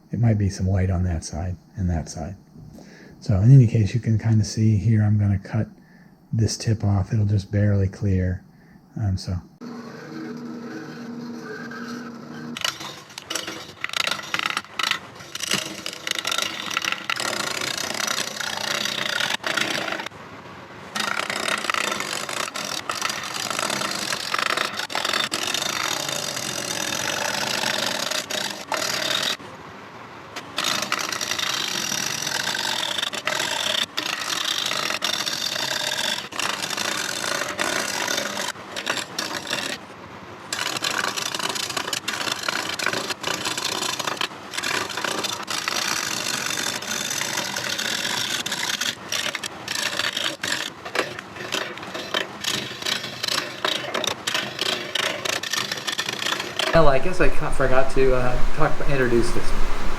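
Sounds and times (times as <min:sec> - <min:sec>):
lathe running: 0:09.6 - 0:20.1, 0:21.0 - 0:29.4, 0:30.6 - 0:39.8, 0:40.5 - 0:59.9
tool scraping spinning wood: 0:09.6 - 0:20.2, 0:20.9 - 0:29.4, 0:30.4 - 0:59.9.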